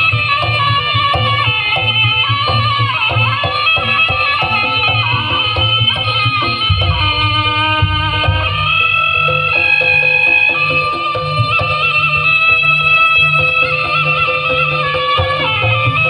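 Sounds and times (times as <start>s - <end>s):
drum strokes: 0.0s - 12.6s
metallophone notes: 0.0s - 16.0s
reed pipe melody: 0.0s - 16.0s.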